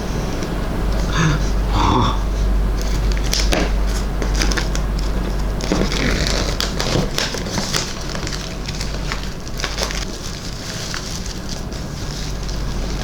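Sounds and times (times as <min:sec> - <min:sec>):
packaging crinkling and rustling: 0:02.8 - 0:13.0.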